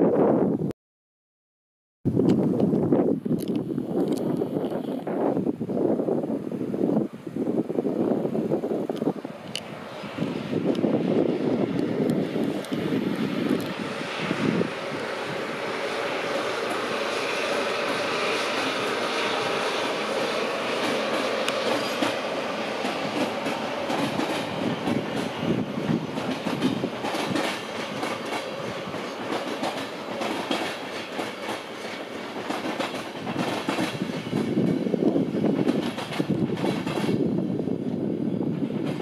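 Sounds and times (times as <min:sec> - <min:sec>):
train wheels clattering over rail joints: 0:11.6 - 0:37.3, 0:38.6 - 0:39.0.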